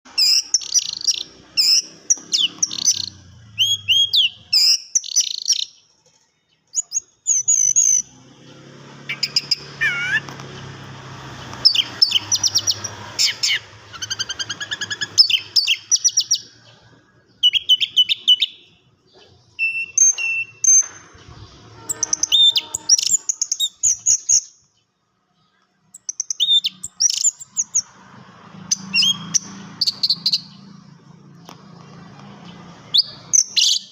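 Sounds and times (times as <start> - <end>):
thrush singing: 7.4 - 18.7, 19.7 - 24.1.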